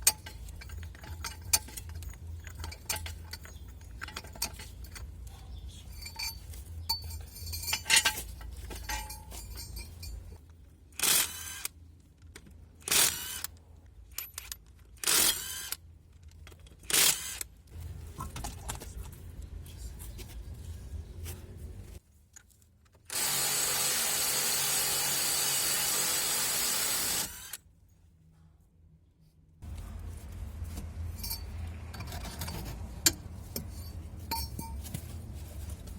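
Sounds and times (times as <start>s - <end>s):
clinks and scrapes on metal: 0.0s - 10.5s, 29.6s - 35.9s.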